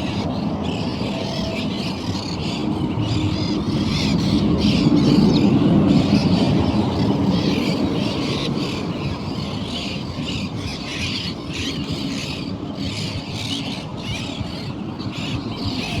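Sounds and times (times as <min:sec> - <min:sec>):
birds chattering and squawking: 0:00.0 - 0:16.0.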